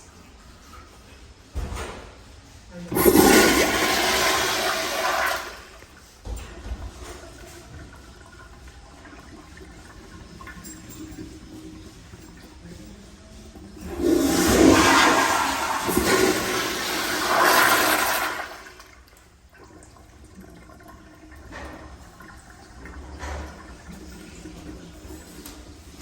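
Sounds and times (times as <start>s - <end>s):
toilet flushing: 2.7s - 26.0s.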